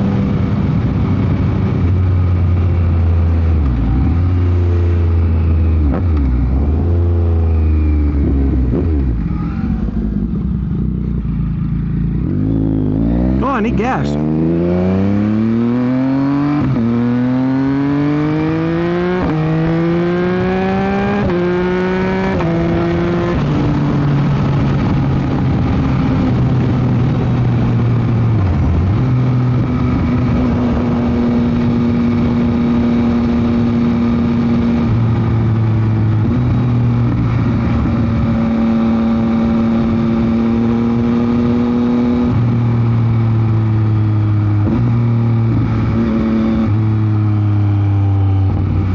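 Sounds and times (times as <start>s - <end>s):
wind noise on microphone: 0.0s - 4.2s, 18.5s - 43.8s, 48.2s - 48.9s
motorcycle engine accelerating: 0.0s - 48.9s.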